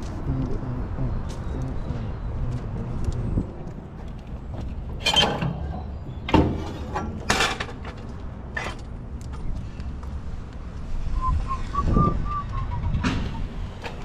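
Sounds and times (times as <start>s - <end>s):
metallic clanks and rattles: 4.5s - 8.9s.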